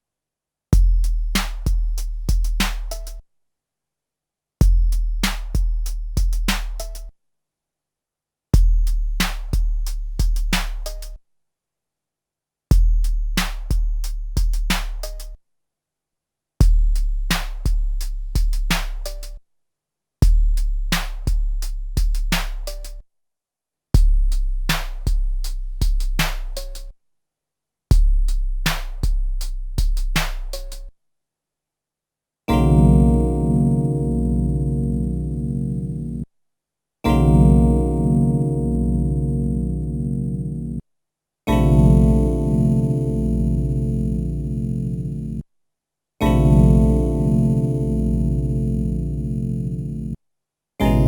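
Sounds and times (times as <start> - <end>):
deep bass drum booms: 0.8 - 2.9.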